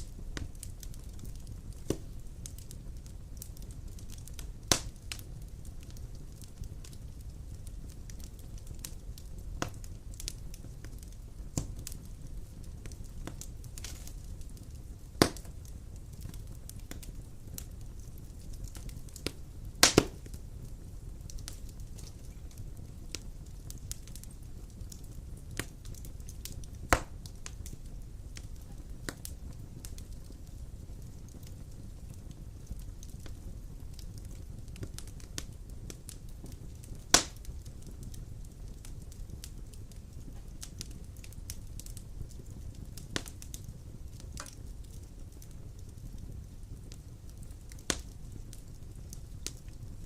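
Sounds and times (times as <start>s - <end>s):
wood fire flames rumbling: 0.0s - 50.0s
wood popping and cracking: 0.4s - 5.0s, 15.2s - 15.6s, 18.1s - 20.4s, 24.9s - 27.6s, 37.1s - 37.4s, 44.4s - 44.9s, 47.6s - 48.2s.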